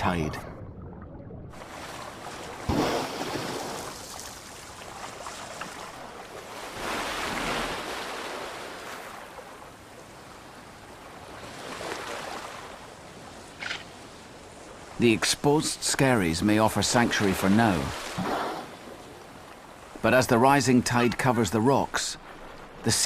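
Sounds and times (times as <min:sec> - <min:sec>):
sea waves washing over rocks: 0:01.5 - 0:09.4.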